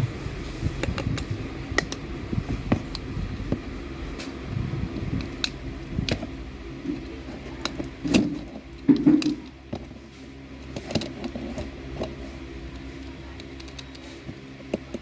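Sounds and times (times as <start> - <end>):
steady low hum: 0.0 - 15.0
sharp clicks and knocks: 2.6 - 10.0.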